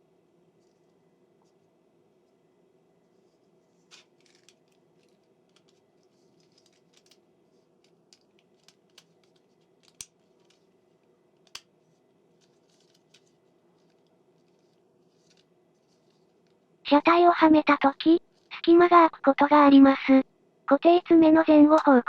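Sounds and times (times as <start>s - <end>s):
low steady hum: 0.0s - 22.0s
plastic parts clicking and scraping: 3.8s - 16.6s.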